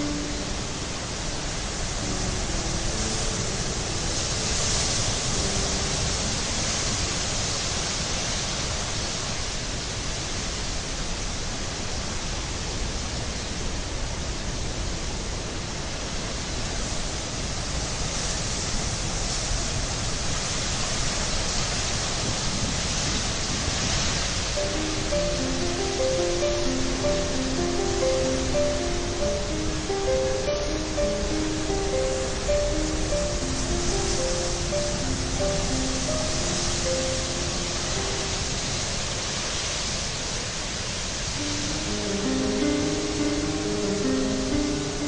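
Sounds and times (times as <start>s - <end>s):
soft music notes: 0.0s - 8.2s, 24.5s - 39.7s, 41.3s - 45.0s
rushing water: 0.0s - 45.0s.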